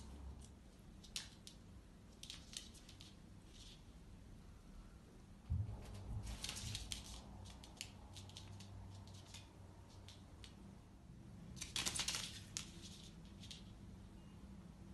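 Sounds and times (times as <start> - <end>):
claws scrabbling on laminate floor: 5.8 - 10.6, 11.6 - 13.8.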